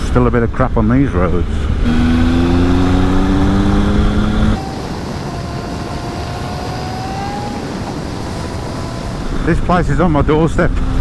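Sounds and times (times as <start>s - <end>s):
wind and road noise: 0.0s - 11.0s
motorcycle engine accelerating: 1.2s - 11.0s
faint whine rising in pitch: 1.8s - 10.4s.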